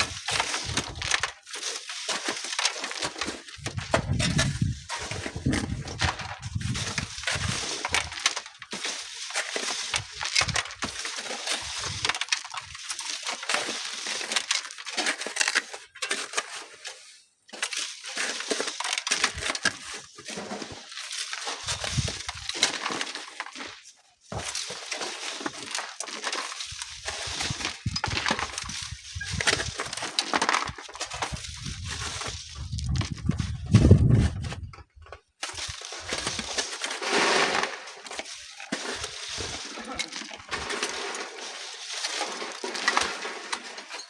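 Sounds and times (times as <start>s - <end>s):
sand and stones crunching: 0.0s - 44.0s
wind buffeting microphone: 3.8s - 7.6s, 32.6s - 34.8s.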